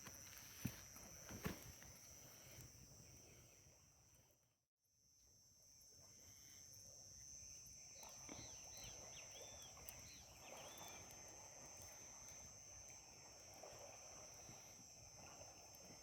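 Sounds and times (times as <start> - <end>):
high insect trill: 0.0 - 4.0, 5.0 - 16.0
bird chirping: 8.3 - 11.0.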